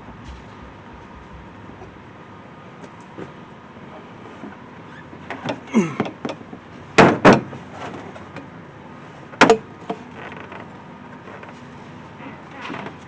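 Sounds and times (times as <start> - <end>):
knocks and clunks of engine parts: 5.2 - 8.5, 9.3 - 10.7.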